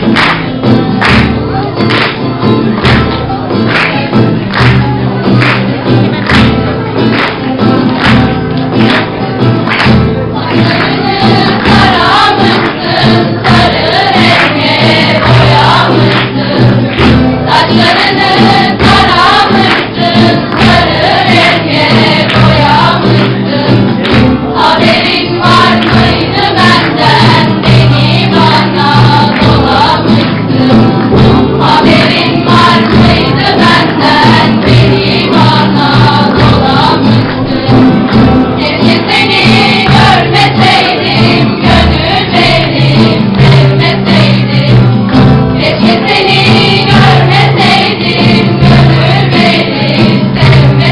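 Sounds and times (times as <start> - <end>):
instrumental accompaniment: 0.0 - 50.9
choir singing: 10.4 - 50.9.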